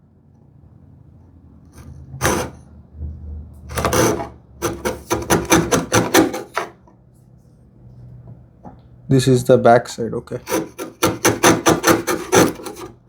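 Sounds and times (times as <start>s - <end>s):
wood chisel scraping wood: 1.8s - 2.6s, 3.7s - 6.8s, 10.4s - 13.0s.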